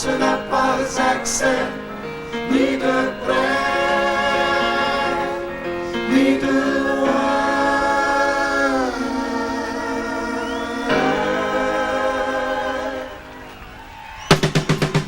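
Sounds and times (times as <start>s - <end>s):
drum kit fast loud hits: 14.3s - 15.0s.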